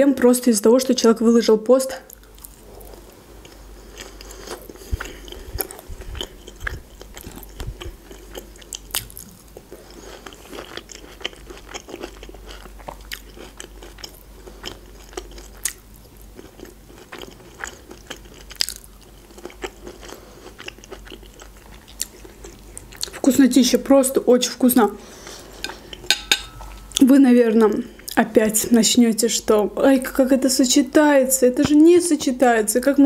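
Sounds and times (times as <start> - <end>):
person chewing with wet smacks: 2.1 - 23.3.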